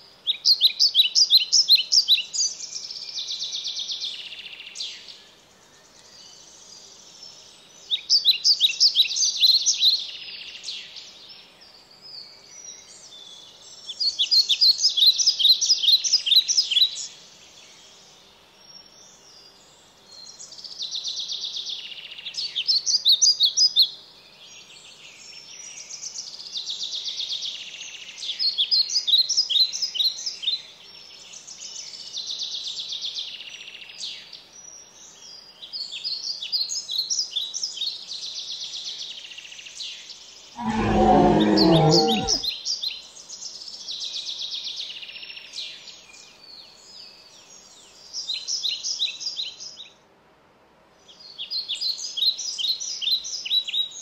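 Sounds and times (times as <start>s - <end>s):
songbird singing: 0.2s - 26.4s, 34.2s - 42.6s
loud low wavering call: 40.6s - 42.4s.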